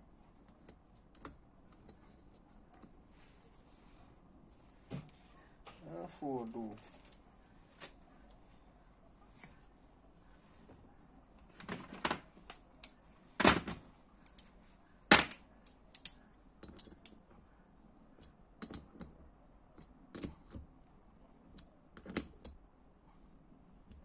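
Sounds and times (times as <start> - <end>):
metal parts and tools clicking: 15.2 - 17.2.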